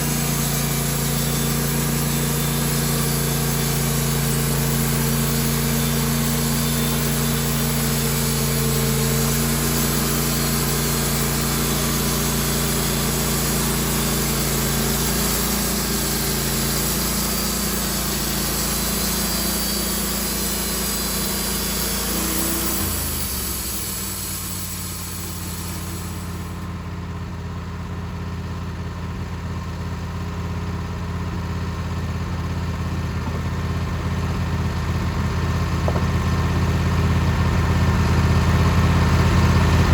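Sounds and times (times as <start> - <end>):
high hiss: 0.0 - 26.6
sawmill engine running: 0.0 - 28.2.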